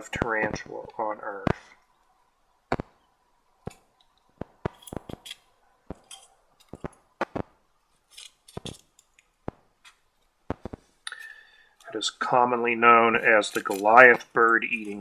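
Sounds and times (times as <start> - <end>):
small tools clicking and scraping: 3.7 - 7.0, 7.9 - 10.0, 11.0 - 11.9, 13.4 - 15.0.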